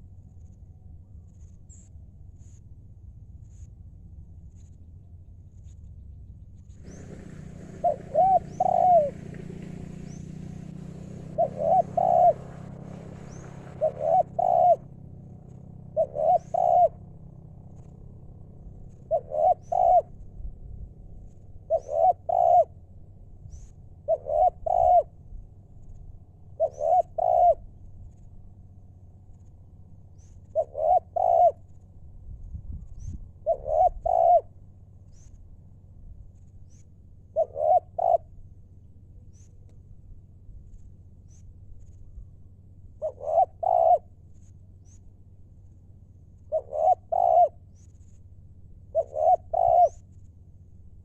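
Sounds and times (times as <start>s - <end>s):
dove cooing: 6.8s - 20.2s, 21.6s - 22.8s, 24.0s - 25.2s, 26.6s - 27.7s, 30.5s - 31.7s, 33.4s - 34.6s, 37.3s - 38.4s, 43.0s - 44.2s, 46.4s - 47.8s, 48.9s - 50.1s.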